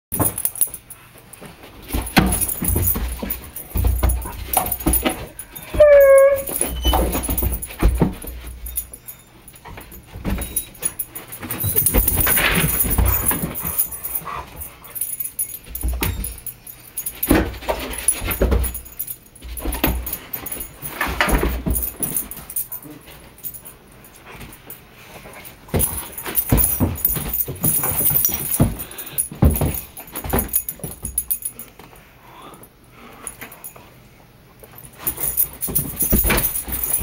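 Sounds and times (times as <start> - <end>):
dogs scrambling and thudding: 0.1 - 31.7, 34.7 - 37.0
dog whining: 5.6 - 7.1.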